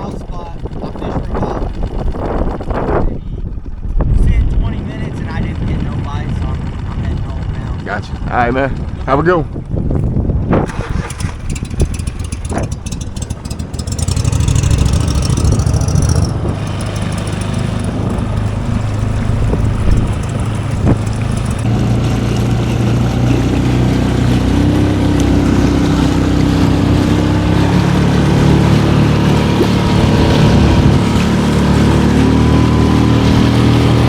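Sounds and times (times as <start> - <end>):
boat motor running: 0.0 - 34.0.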